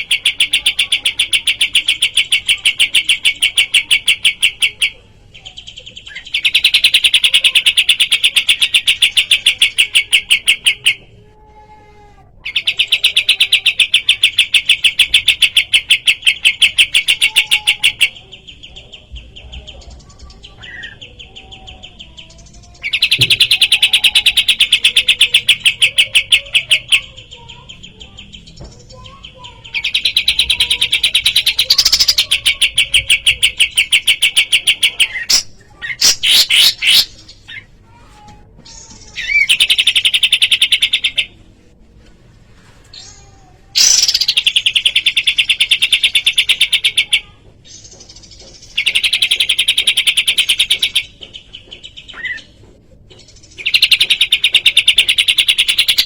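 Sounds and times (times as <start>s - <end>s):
bird singing rapid trill: 12.4s - 37.7s, 43.8s - 52.6s.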